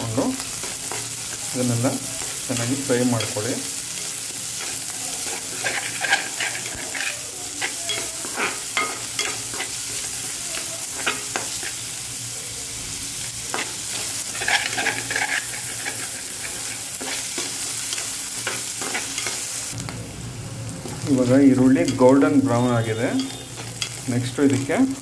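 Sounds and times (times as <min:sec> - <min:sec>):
food sizzling in hot oil: 0:00.0 - 0:25.0
spatula scraping a pan: 0:00.6 - 0:12.0, 0:13.5 - 0:19.5.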